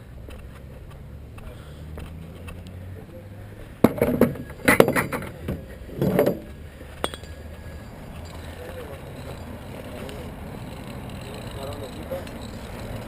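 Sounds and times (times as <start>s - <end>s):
hard objects clinking and rattling: 3.8s - 13.0s.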